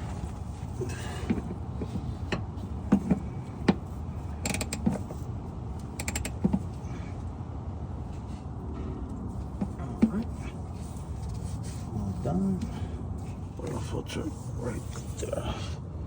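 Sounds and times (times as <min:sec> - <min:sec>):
hand ratchet clicking: 0:04.4 - 0:05.0, 0:06.0 - 0:06.4.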